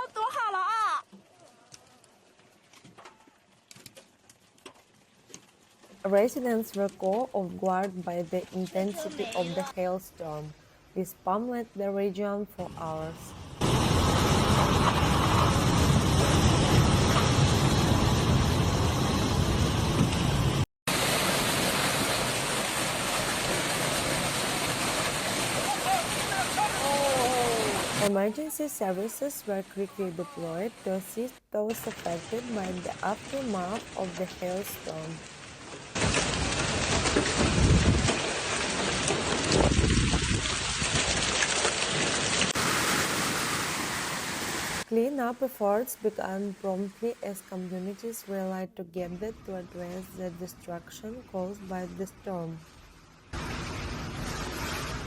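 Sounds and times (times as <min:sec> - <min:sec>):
heavy hailstorm hiss: 0:13.6 - 0:29.1
hail and rain pelting down: 0:20.9 - 0:28.1, 0:35.2 - 0:43.6.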